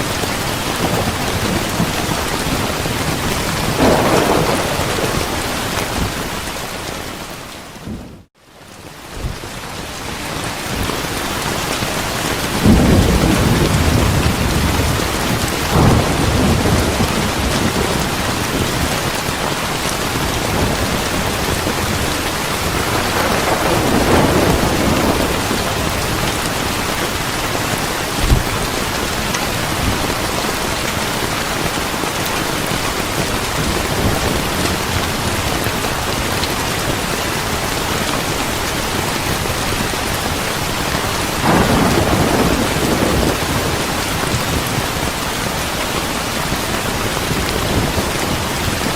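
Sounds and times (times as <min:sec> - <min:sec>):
heavy rain: 0:00.0 - 0:48.9
thunder rumbling: 0:00.1 - 0:08.3, 0:11.9 - 0:40.4, 0:41.0 - 0:45.2
sharp thunder crack: 0:03.6 - 0:06.2, 0:22.7 - 0:26.4, 0:41.4 - 0:43.8.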